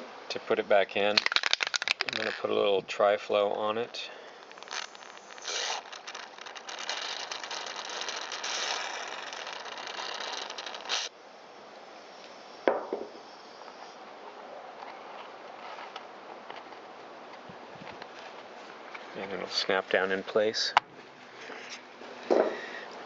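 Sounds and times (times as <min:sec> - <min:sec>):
aerosol can spraying: 0:04.4 - 0:11.1.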